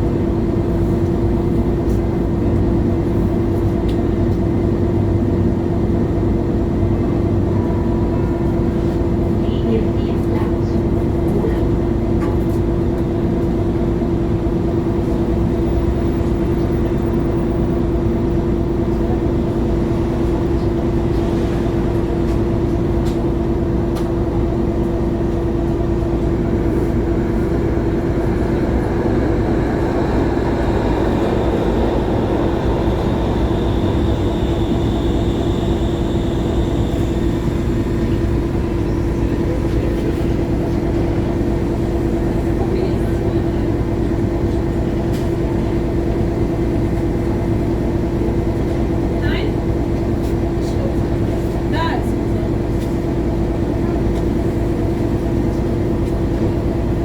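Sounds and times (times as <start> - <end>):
diesel bus engine droning: 0.0 - 57.0
high whine: 25.1 - 41.8.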